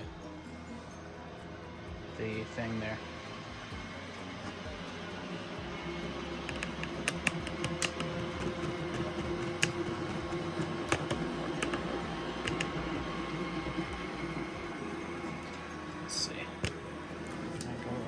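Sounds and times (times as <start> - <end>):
robot vacuum motor hum: 1.6 - 18.0
sharp clicks: 6.4 - 9.9, 12.4 - 12.8.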